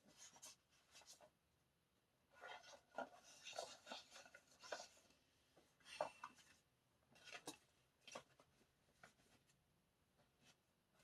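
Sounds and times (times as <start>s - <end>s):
paper rustling: 2.4s - 5.1s.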